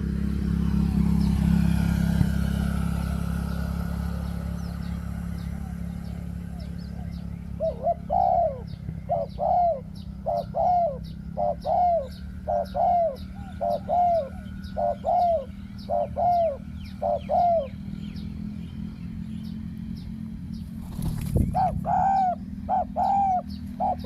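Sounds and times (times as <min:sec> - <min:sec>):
small birds chirping: 0:00.0 - 0:24.0
steady low hum: 0:00.0 - 0:24.0
dove cooing: 0:05.3 - 0:17.9, 0:21.4 - 0:24.0.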